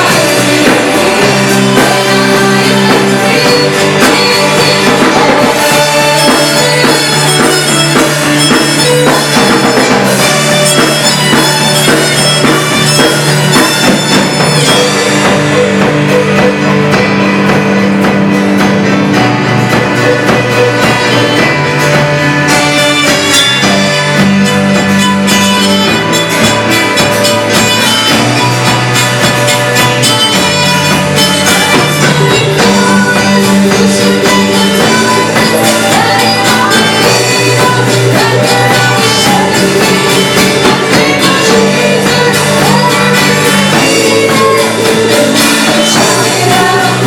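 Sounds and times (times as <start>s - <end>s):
bass line: 0.0s - 47.0s
drums: 0.0s - 47.0s
worship band playing: 0.0s - 47.0s.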